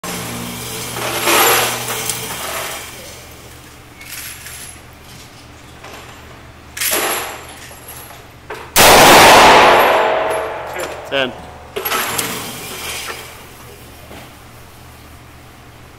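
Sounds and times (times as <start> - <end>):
loud revolver shot with echo: 8.8 - 11.2
faint gunshots: 8.8 - 11.4.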